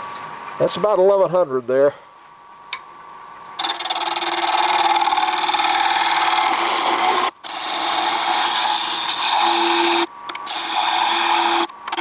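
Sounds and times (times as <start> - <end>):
scraper cutting wood on lathe: 3.6 - 12.0.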